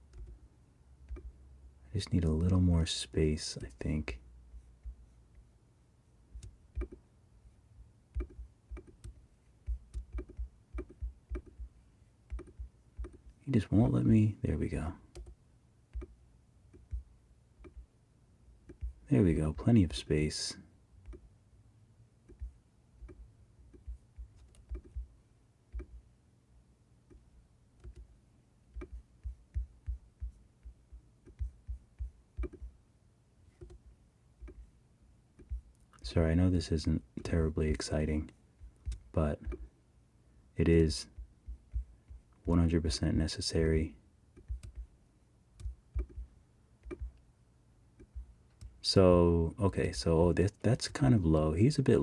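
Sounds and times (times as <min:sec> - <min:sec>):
computer mouse clicks: 0:00.0 - 0:00.4, 0:01.1 - 0:01.4, 0:06.4 - 0:07.0, 0:08.2 - 0:11.7, 0:12.3 - 0:13.3, 0:15.1 - 0:17.9, 0:22.3 - 0:25.1, 0:25.7 - 0:26.0, 0:27.8 - 0:28.1, 0:28.8 - 0:32.7, 0:33.6 - 0:34.6, 0:38.2 - 0:39.6, 0:44.4 - 0:44.9, 0:45.6 - 0:47.2.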